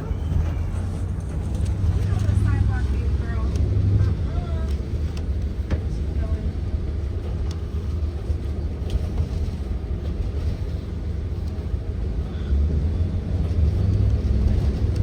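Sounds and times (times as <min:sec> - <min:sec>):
bus engine rumble: 0:00.0 - 0:15.0
road noise: 0:00.0 - 0:15.0.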